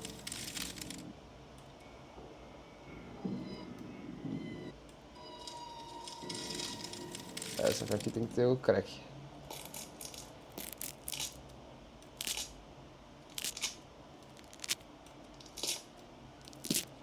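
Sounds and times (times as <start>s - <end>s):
bone cracking sound effect: 9.5s - 11.4s, 12.2s - 12.6s, 13.3s - 14.8s, 15.4s - 17.0s.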